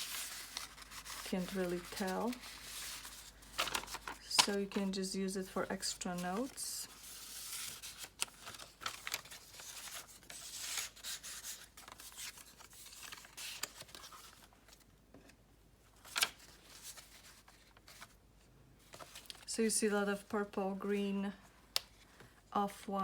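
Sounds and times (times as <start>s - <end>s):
paper rustling: 0.0s - 14.8s, 16.0s - 18.2s, 18.8s - 19.5s.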